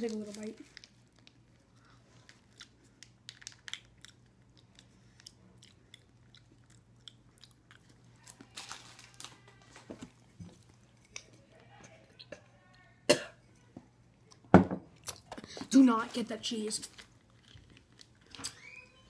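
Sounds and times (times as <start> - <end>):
person chewing: 0.6 - 8.6, 14.2 - 15.6, 16.9 - 18.6.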